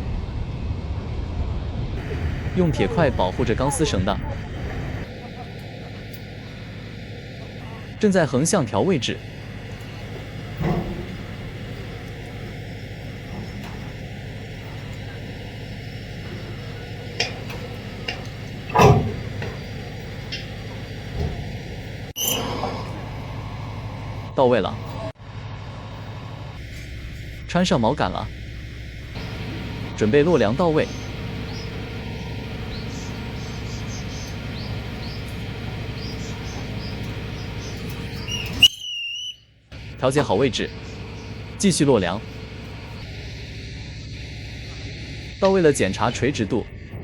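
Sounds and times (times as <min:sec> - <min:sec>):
heavy machinery rumbling: 0:00.0 - 0:38.7, 0:39.6 - 0:47.0
faint short high chirps: 0:38.2 - 0:39.5.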